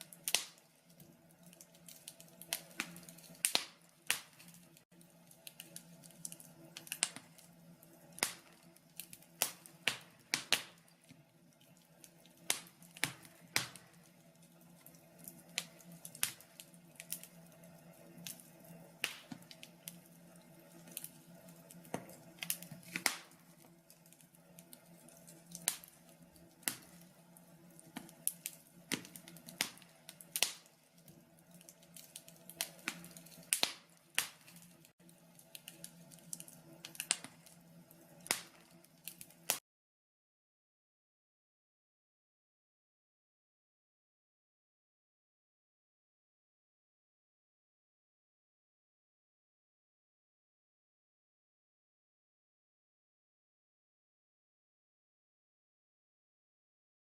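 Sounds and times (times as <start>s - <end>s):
faint steady hum: 0.0s - 39.6s
logs crackling and popping: 0.0s - 39.6s.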